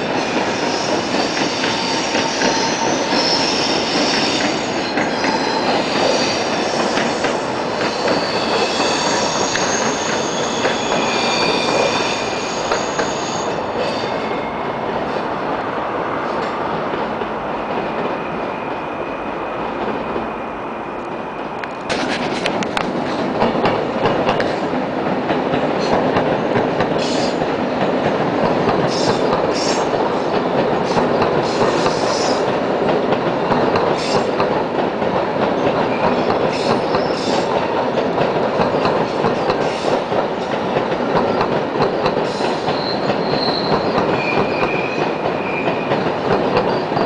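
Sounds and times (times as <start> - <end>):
train wheels clickety-clack: 0.0 - 14.2, 21.0 - 47.0
drawn-out wheel squeals: 0.7 - 6.9, 7.8 - 14.6, 42.5 - 46.0.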